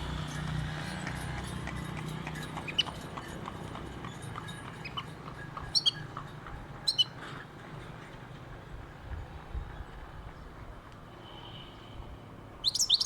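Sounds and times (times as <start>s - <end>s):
finch twittering song: 4.8s - 6.1s, 6.8s - 7.2s, 12.6s - 13.0s.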